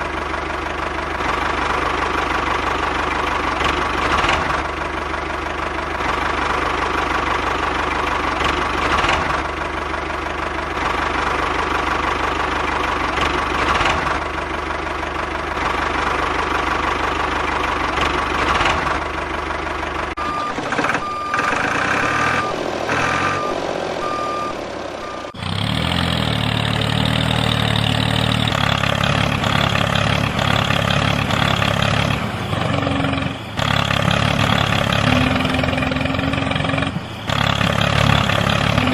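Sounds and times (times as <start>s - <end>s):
reversing beeps: 20.2s - 25.4s.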